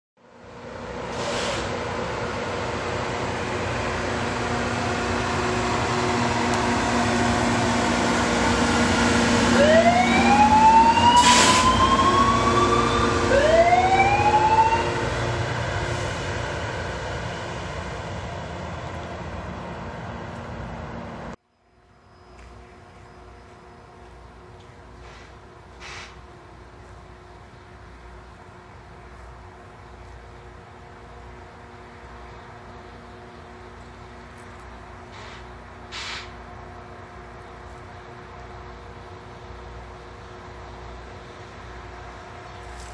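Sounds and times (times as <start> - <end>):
rail grinder train drone: 0.2 - 42.9
rising machine whines: 4.6 - 17.3.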